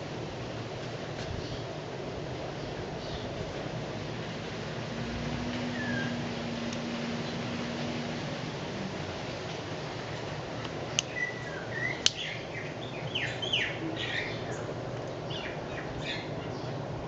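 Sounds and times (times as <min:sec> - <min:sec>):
background hiss: 0:00.0 - 0:17.0
wild birds chirping: 0:02.5 - 0:03.4, 0:04.8 - 0:08.9, 0:09.8 - 0:17.0.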